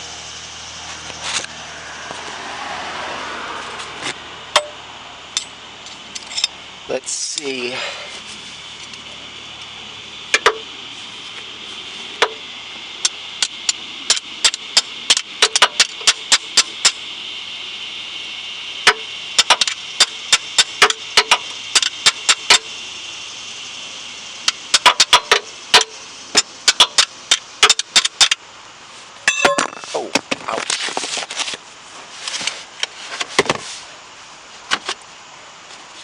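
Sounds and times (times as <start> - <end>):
steady hiss: 5.0 - 36.0.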